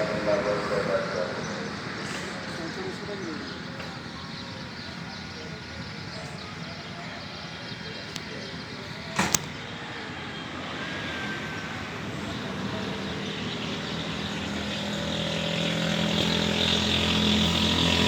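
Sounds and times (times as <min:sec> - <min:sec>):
vehicle engine approaching: 0:00.0 - 0:05.5, 0:10.7 - 0:18.0.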